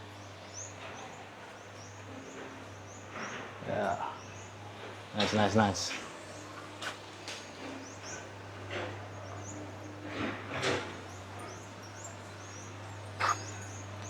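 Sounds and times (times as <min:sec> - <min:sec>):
faint voices: 0:13.2 - 0:13.6.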